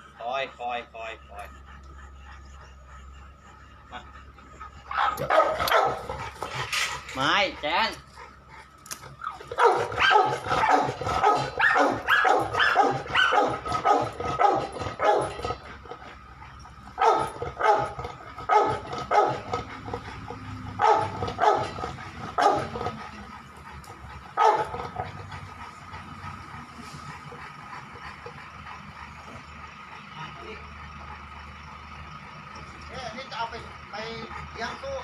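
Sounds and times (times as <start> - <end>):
dog barking: 4.9 - 6.3, 9.2 - 15.6, 17.0 - 19.6, 20.7 - 23.0, 24.4 - 25.1.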